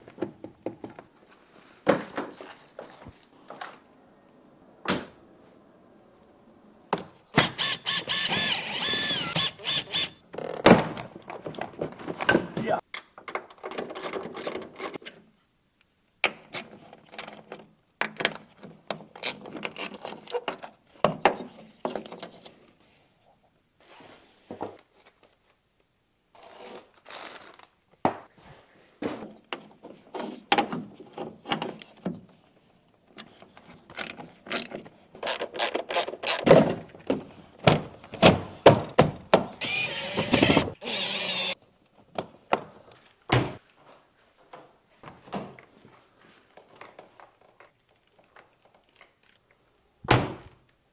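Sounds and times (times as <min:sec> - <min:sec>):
hand tools clicking and ratcheting: 0:07.4 - 0:10.2, 0:34.0 - 0:36.5, 0:39.6 - 0:41.6.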